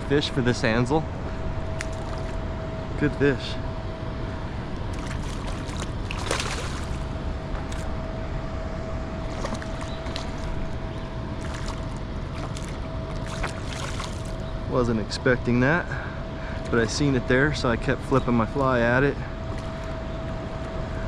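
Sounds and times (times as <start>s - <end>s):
faint constant hum: 0.0s - 21.0s
water rushing: 11.4s - 14.4s.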